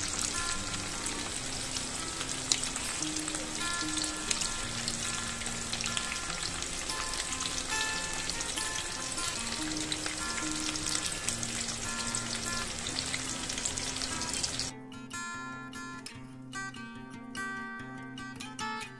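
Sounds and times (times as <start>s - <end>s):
food sizzling in hot oil: 0.0s - 14.7s
soft background music: 0.0s - 18.9s.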